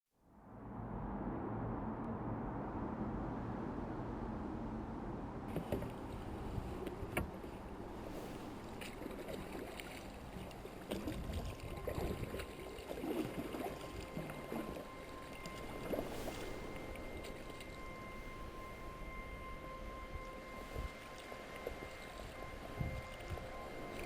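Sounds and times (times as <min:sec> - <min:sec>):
water sloshing against hull: 0:05.4 - 0:24.0
paddle splashing in water: 0:05.5 - 0:18.8.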